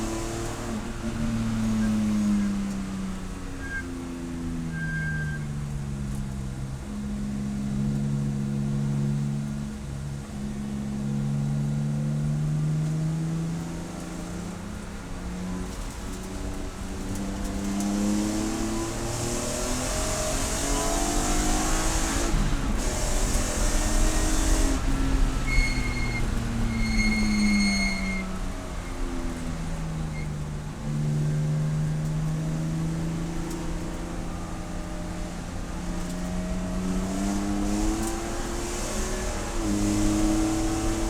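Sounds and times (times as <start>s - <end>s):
race car engine at full throttle: 0.0s - 41.0s
high steady squeal: 3.5s - 5.6s, 23.1s - 30.5s.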